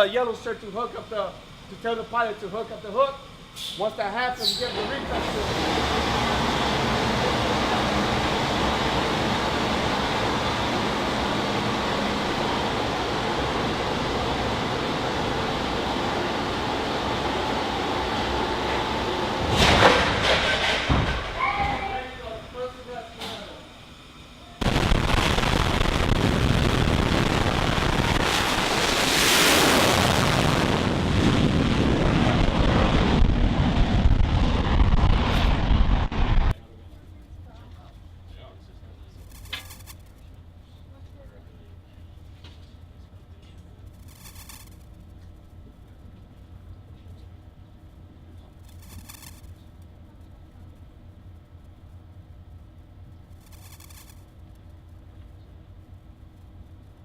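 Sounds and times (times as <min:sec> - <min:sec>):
jet engine steady roar: 0:04.6 - 0:24.8, 0:25.6 - 0:36.6.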